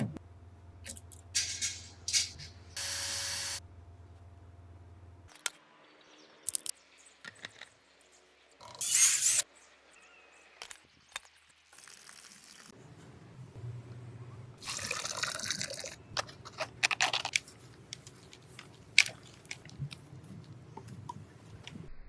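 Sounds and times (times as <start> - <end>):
short bursts of hiss: 8.8 - 9.4.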